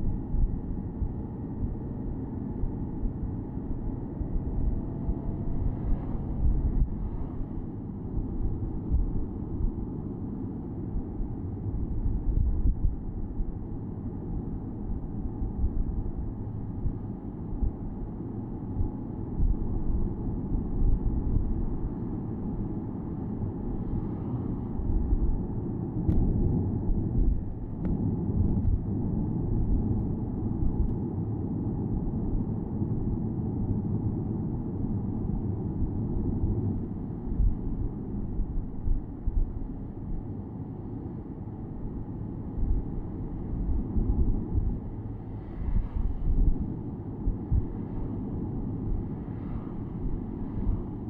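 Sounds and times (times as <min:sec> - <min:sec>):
car engine rumbling: 0:00.1 - 0:10.5.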